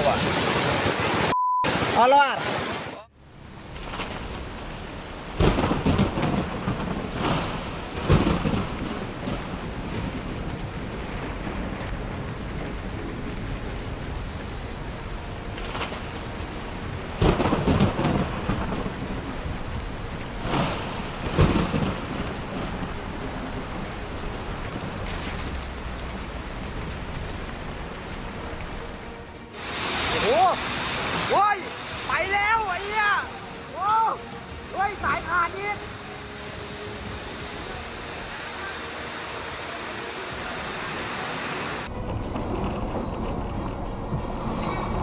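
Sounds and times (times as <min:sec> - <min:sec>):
heavy rain: 0:00.0 - 0:45.0
thunder claps and rumbles: 0:03.6 - 0:29.2, 0:41.8 - 0:45.0.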